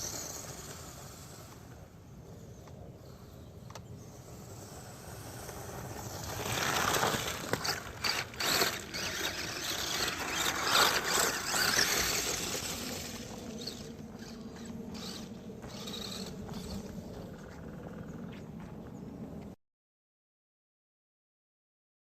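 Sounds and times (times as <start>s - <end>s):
toy truck motor whirring: 0.0s - 2.0s, 3.7s - 17.1s.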